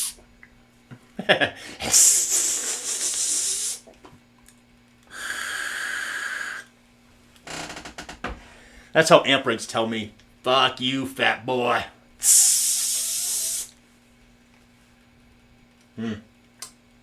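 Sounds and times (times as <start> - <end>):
low mains hum: 0.0 - 17.0
guitar amp hissing: 1.8 - 3.9, 12.2 - 13.7.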